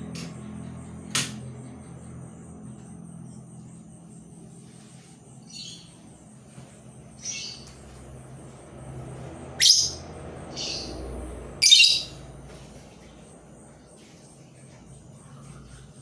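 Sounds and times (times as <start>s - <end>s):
decoy bird chirping: 5.4s - 6.1s, 7.1s - 7.7s, 9.5s - 12.3s.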